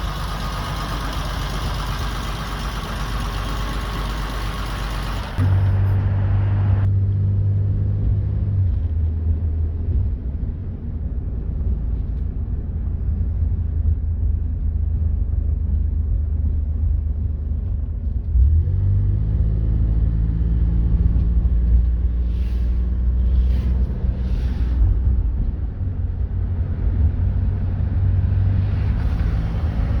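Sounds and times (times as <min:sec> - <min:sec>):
car engine running: 0:00.0 - 0:06.9, 0:08.7 - 0:18.3.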